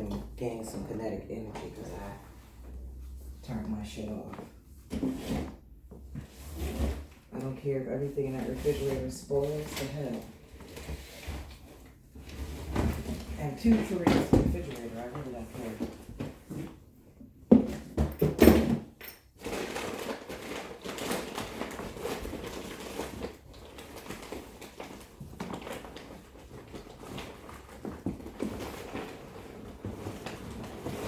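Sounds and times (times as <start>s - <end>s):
rustling and shuffling of objects: 0.0s - 31.0s.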